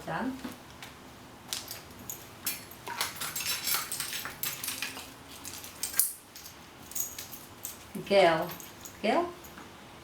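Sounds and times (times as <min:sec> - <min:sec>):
small hard objects clinking: 0:01.5 - 0:08.6.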